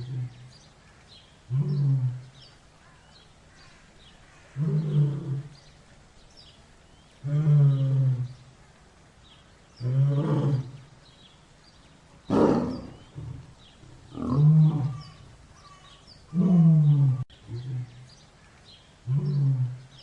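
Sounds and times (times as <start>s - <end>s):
large animal calling: 12.3s - 18.1s.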